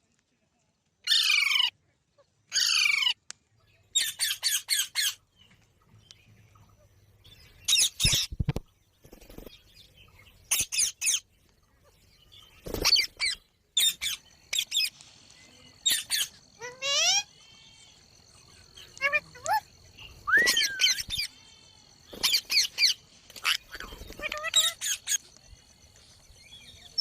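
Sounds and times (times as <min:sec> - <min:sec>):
parrot screeching and squawking: 0:01.0 - 0:01.7, 0:02.5 - 0:03.2, 0:04.0 - 0:05.2, 0:15.8 - 0:17.3, 0:20.3 - 0:21.2, 0:22.2 - 0:25.2.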